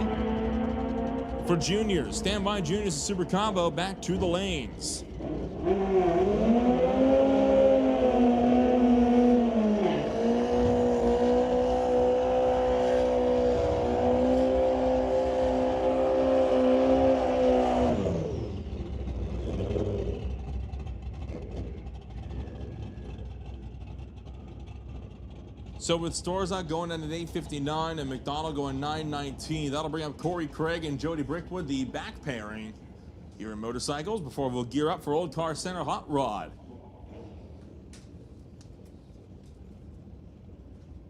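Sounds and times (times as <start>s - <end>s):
motorcycle engines at high revs: 0.0s - 32.6s.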